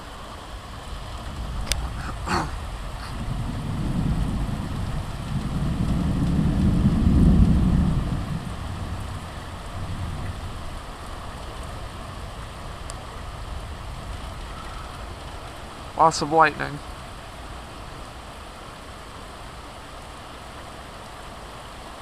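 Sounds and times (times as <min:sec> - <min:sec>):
thunder rumbling: 0:00.0 - 0:18.3
heavy rain: 0:00.0 - 0:22.0.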